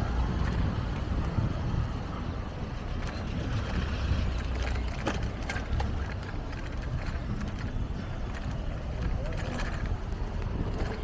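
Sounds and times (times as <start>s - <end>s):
city traffic rumble: 0.0s - 11.0s
wind on microphone: 0.0s - 11.0s
bicycle clicks and rattles: 3.0s - 11.0s.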